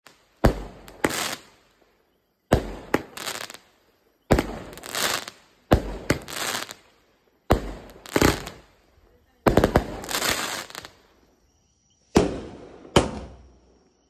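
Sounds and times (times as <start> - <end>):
firework crackling burst: 0.0 - 1.7, 4.3 - 6.9, 7.5 - 8.8, 9.5 - 11.1.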